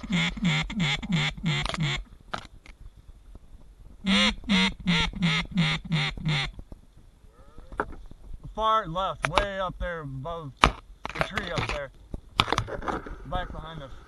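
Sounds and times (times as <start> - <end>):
duck call quacks: 0.0 - 2.0, 4.0 - 6.5.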